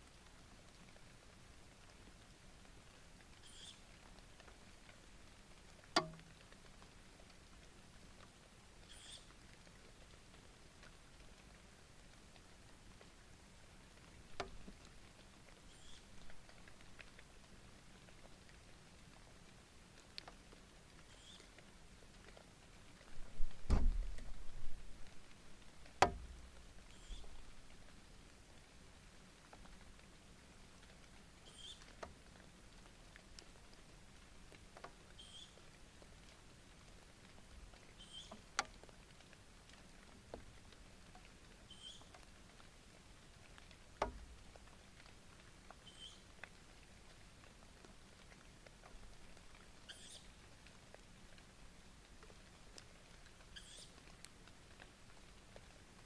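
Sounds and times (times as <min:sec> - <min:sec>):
heavy knocks on wooden box: 0:23.7 - 0:24.0.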